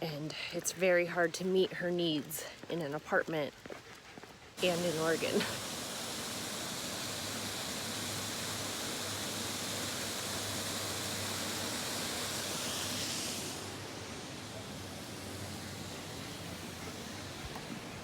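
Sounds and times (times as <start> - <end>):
flowing water rushing: 4.6 - 18.0.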